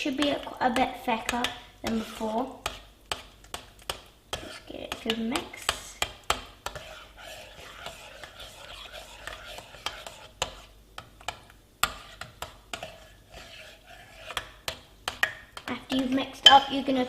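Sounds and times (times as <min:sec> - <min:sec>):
spoon scraping in bowl: 0:06.6 - 0:10.7, 0:11.8 - 0:15.3.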